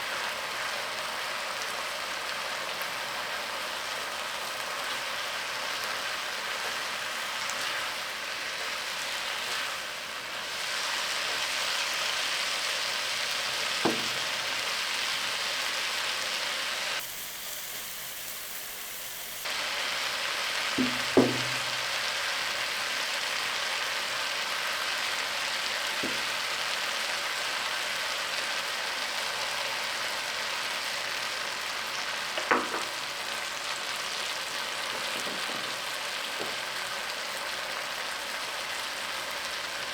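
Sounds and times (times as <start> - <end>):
food sizzling in oil: 0.0 - 39.9
sharp knocks: 13.8 - 14.3, 20.8 - 21.8, 32.4 - 32.9.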